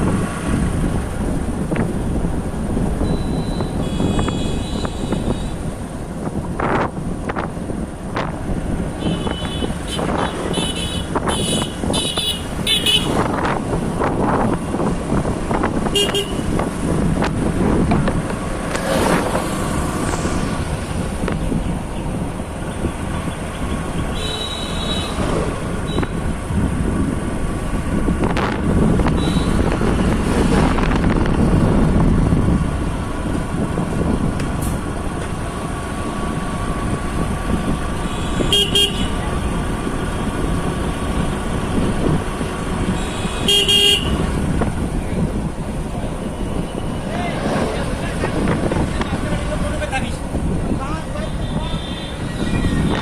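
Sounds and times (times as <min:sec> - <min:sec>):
engine noise: 0:00.0 - 0:53.0
wind noise: 0:00.0 - 0:53.0
vehicle horns tooting: 0:03.0 - 0:05.6, 0:09.0 - 0:13.3, 0:15.9 - 0:16.6, 0:22.8 - 0:26.2, 0:29.1 - 0:29.8, 0:38.0 - 0:39.2, 0:42.9 - 0:44.3, 0:51.1 - 0:53.0.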